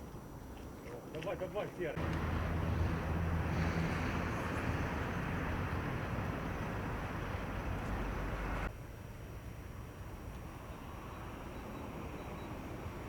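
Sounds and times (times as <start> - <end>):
road noise: 1.8 - 13.0
heavy vehicle engine rumbling: 2.0 - 8.7.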